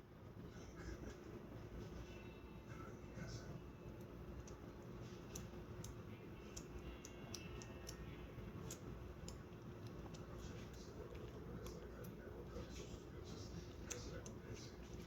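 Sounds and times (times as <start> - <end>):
kitten suckling clicks: 4.0 - 12.2.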